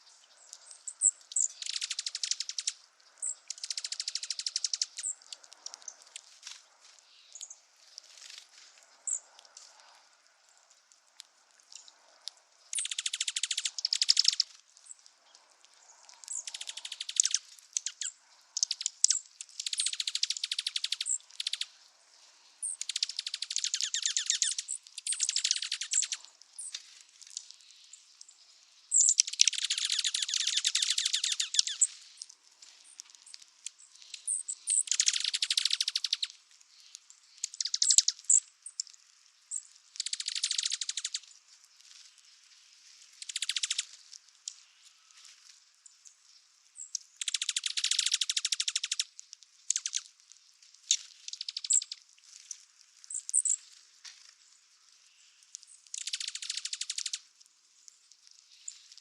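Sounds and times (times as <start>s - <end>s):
squirrel rattling chatter: 1.0s - 6.4s, 12.7s - 14.6s, 15.9s - 21.7s, 22.6s - 26.8s, 28.9s - 32.0s, 33.3s - 36.4s, 37.4s - 38.9s, 39.5s - 41.3s, 43.2s - 44.0s, 46.8s - 49.1s, 49.7s - 50.0s, 50.9s - 53.7s, 55.9s - 57.2s.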